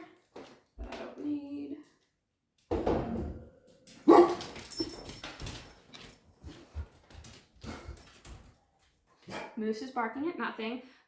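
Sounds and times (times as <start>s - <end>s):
dog barking: 4.0s - 4.6s.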